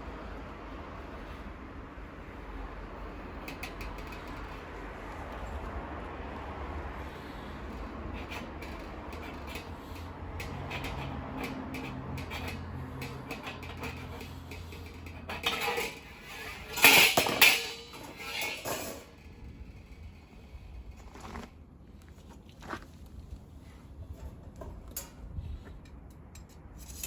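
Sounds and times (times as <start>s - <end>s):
metal pieces clanking and scraping: 8.2s - 19.4s, 26.4s - 27.0s.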